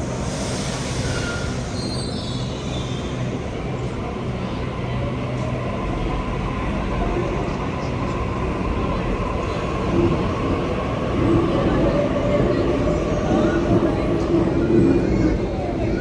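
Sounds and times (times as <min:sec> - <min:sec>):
high wheel squeal: 0:00.4 - 0:03.3.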